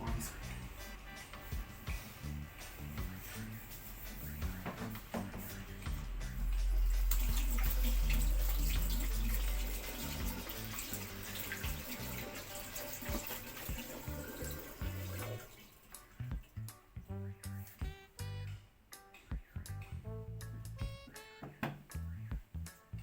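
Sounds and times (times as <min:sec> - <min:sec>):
background music: 0:00.0 - 0:23.0
deep rumble: 0:05.5 - 0:10.7
rushing water: 0:06.4 - 0:16.2.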